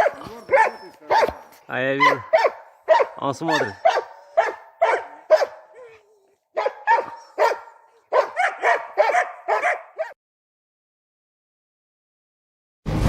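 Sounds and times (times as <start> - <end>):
dog whining: 0.0 - 2.2, 3.6 - 10.2
dog barking rapidly: 0.0 - 6.0, 6.6 - 10.2.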